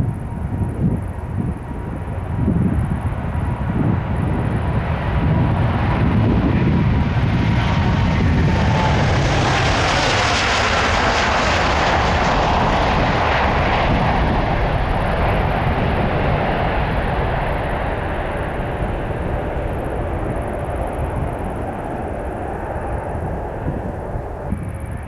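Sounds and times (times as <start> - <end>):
jet airliner passing: 0.0 - 25.0.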